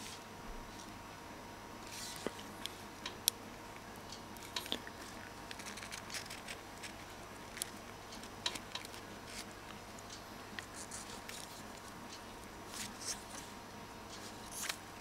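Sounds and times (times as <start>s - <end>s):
small clicks and rustles of wiring: 1.9s - 13.5s.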